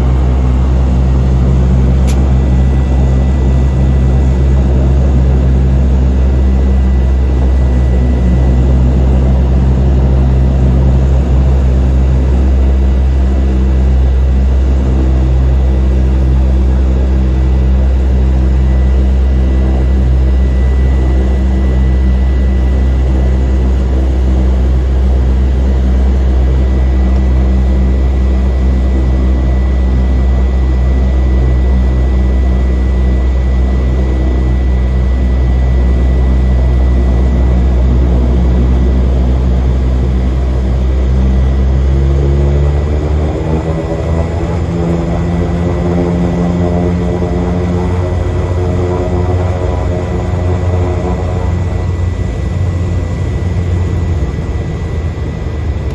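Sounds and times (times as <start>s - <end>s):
propeller plane engine drone: 0.0s - 55.9s
thin high whine: 43.3s - 55.7s.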